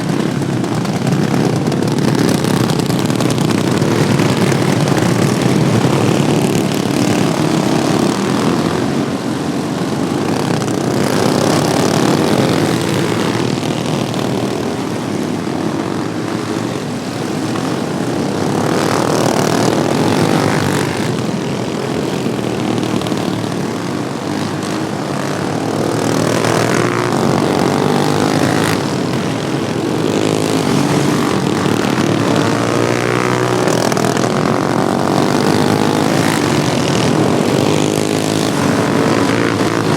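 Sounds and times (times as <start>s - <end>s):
small engines buzzing and revving: 0.0s - 39.9s.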